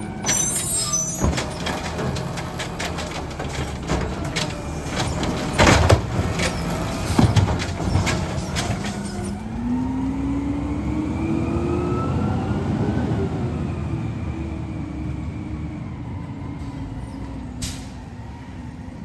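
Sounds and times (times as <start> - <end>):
heavy bangs: 0.0 - 9.4
cart rattling into hopper: 0.0 - 9.7
garbage truck engine revving: 0.0 - 15.3.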